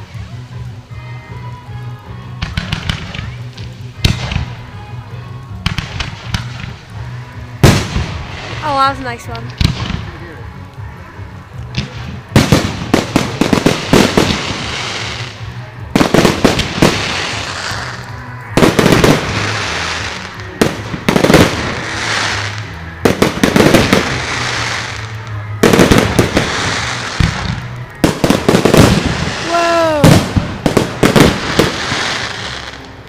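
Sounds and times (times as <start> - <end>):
fireworks crackling hiss: 0.0 - 33.0
fireworks bangs: 5.6 - 6.9, 7.6 - 10.2, 11.7 - 33.0.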